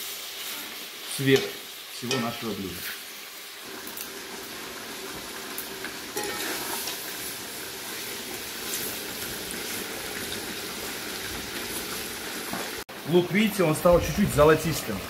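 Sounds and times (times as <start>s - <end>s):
meat and onion sizzling in oil: 0.0s - 15.0s
metal skimmer stirring: 6.2s - 6.8s.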